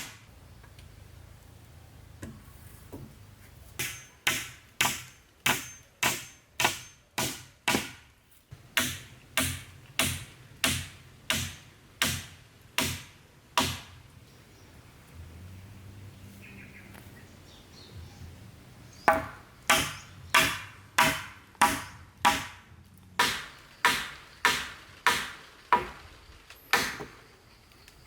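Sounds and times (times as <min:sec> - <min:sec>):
chopping blows on wood: 0:19.1 - 0:22.6.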